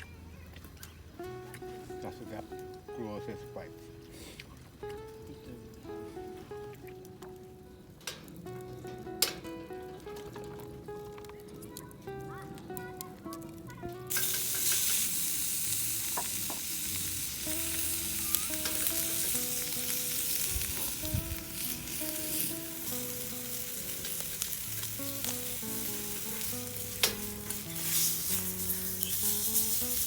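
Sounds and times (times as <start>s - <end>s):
gentle background music: 0.0s - 30.0s
food sizzling in a pan: 14.0s - 30.0s.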